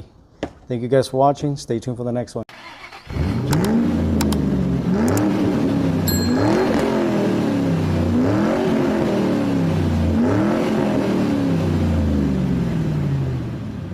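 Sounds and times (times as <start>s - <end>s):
engine revving: 2.8s - 13.7s.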